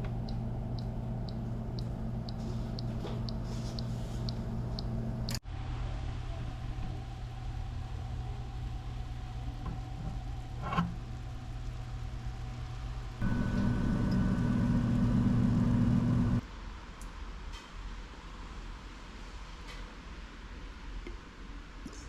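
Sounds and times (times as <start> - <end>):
steady machine hum: 0.0 - 5.7, 7.1 - 16.4
high machine whine: 13.2 - 16.4.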